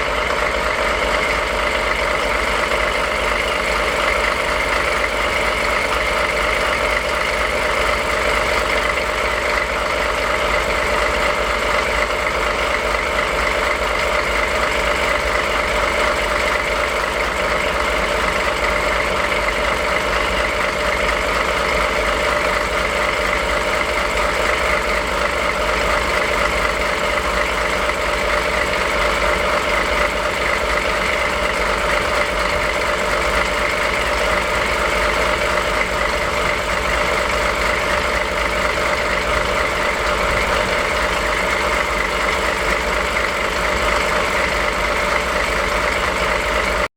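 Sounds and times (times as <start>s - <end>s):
diesel engine idling: 0.0s - 46.9s.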